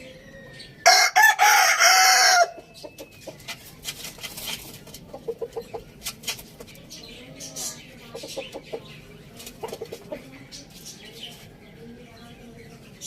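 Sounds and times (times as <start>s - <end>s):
faint chicken clucking: 0.0s - 13.0s
rooster crowing: 0.8s - 2.6s.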